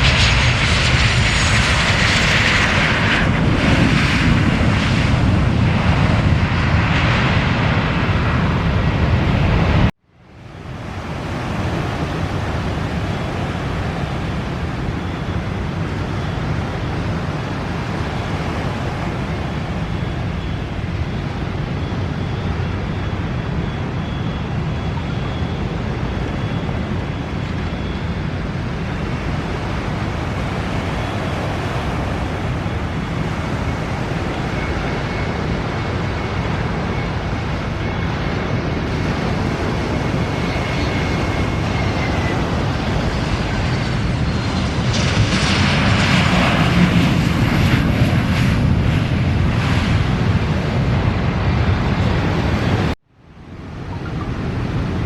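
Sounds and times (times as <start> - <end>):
jet engines roaring: 0.0 - 55.0
faint high whine: 10.1 - 50.1, 51.4 - 55.0.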